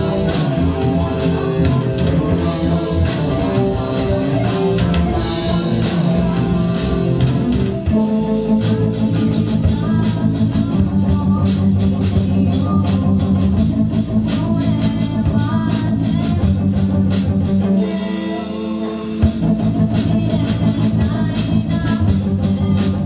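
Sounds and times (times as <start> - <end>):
live rock band playing: 0.0 - 23.0.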